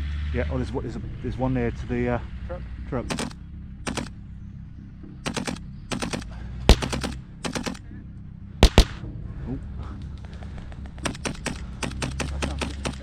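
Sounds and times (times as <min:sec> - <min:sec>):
airsoft guns firing bursts: 0:03.9 - 0:04.1, 0:05.3 - 0:07.8, 0:08.6 - 0:09.0, 0:11.1 - 0:13.0
sharp loud crack: 0:06.7 - 0:07.2, 0:08.6 - 0:09.0.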